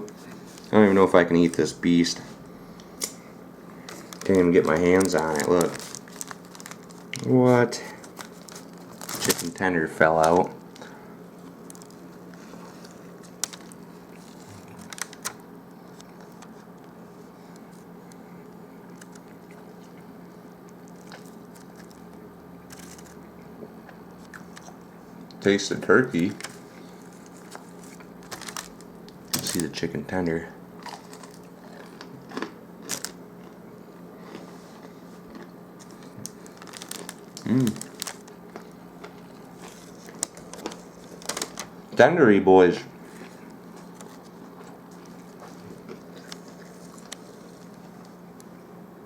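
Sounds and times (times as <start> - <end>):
steady low hum: 0.0 - 49.0
paper wrapper crinkling: 3.8 - 16.7, 20.8 - 23.2, 26.1 - 30.0, 30.9 - 33.2, 34.3 - 41.8, 43.1 - 48.1
person chewing: 17.6 - 24.8, 30.8 - 41.3, 43.1 - 48.1.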